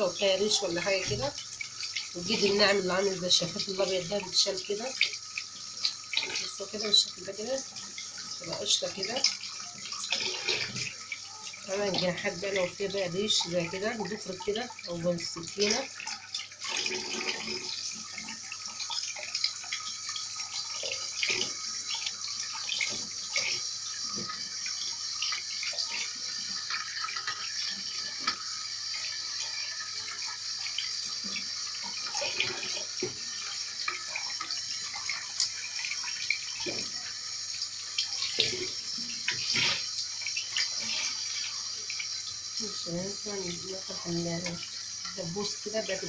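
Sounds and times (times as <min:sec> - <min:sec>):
tap running into a sink: 0:07.7 - 0:42.4.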